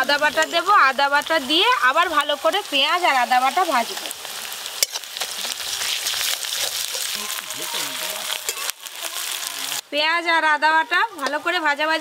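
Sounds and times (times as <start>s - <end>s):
onions sizzling in hot oil: 0.0s - 12.0s
spatula stirring in wok: 2.0s - 9.5s.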